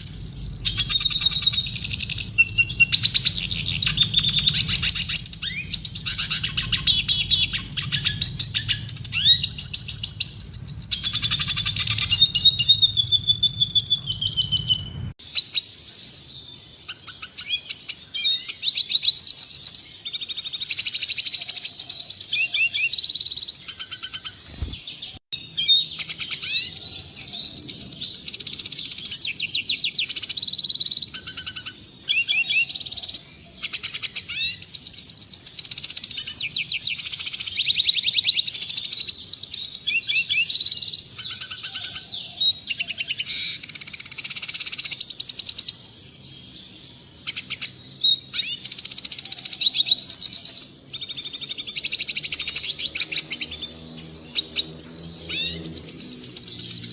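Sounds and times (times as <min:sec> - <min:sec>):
low background hum: 0:00.0 - 0:15.2
bird singing high trills: 0:00.0 - 0:56.9.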